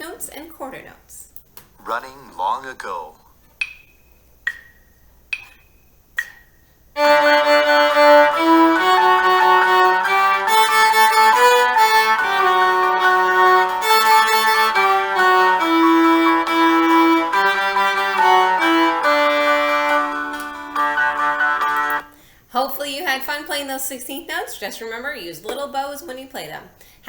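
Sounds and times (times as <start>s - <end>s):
accompaniment track: 7.0s - 22.1s
viola melody: 7.0s - 22.1s
count-in click: 21.7s - 22.1s.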